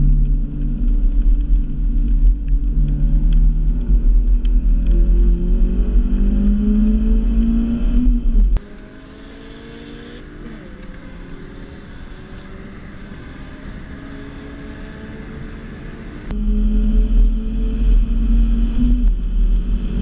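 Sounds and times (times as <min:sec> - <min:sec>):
car engine accelerating hard: 0:00.0 - 0:20.0
quieter car engine accelerating: 0:00.0 - 0:20.0.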